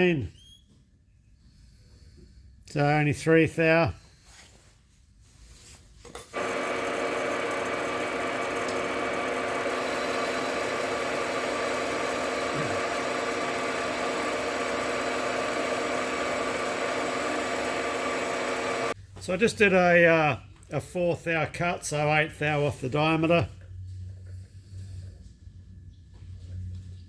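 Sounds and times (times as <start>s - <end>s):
metal lathe humming: 6.4s - 19.0s.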